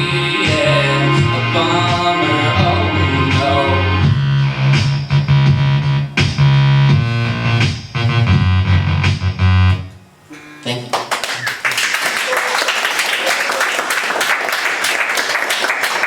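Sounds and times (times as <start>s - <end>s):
synthesizer and keyboard chords: 0.0s - 9.9s
heavy pulsing bass line: 0.0s - 10.8s.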